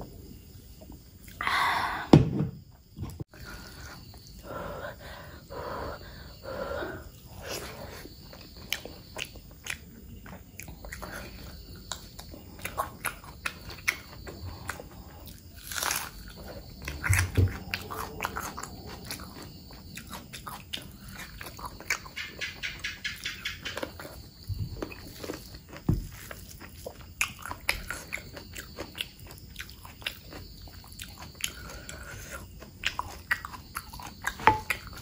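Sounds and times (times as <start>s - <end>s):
close chewing and mouth smacks: 7.2s - 35.0s.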